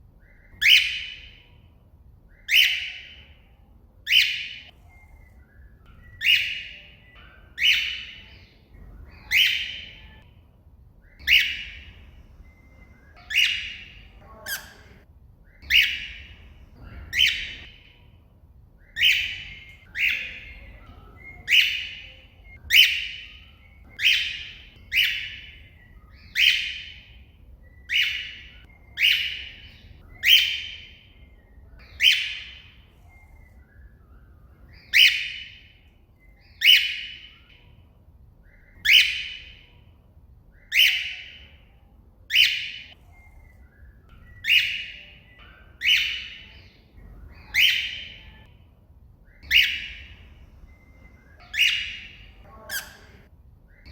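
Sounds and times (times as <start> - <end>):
cockatiel shrill calls: 0.2 - 1.4, 9.1 - 10.0, 11.2 - 12.0, 13.1 - 14.9, 15.6 - 16.4, 21.4 - 27.1, 27.9 - 31.0, 31.8 - 32.8, 34.7 - 35.6, 38.6 - 39.6, 40.6 - 41.4, 42.3 - 43.0, 44.4 - 48.4, 49.3 - 50.2, 51.2 - 53.9.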